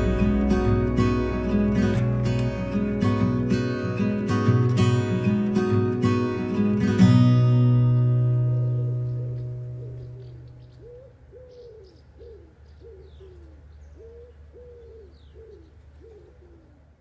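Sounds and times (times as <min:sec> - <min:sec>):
acoustic guitar music: 0:00.0 - 0:11.0
faint high bird chirps: 0:08.0 - 0:16.4
bird cooing: 0:08.9 - 0:17.0.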